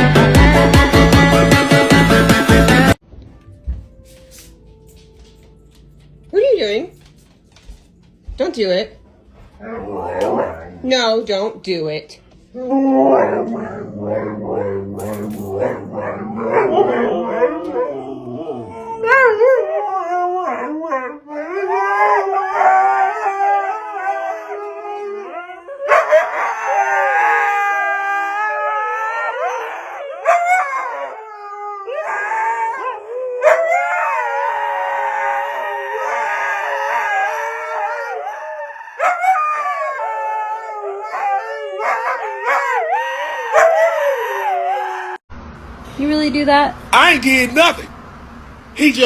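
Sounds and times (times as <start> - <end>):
dog howling: 9.6 - 10.9, 12.6 - 45.2.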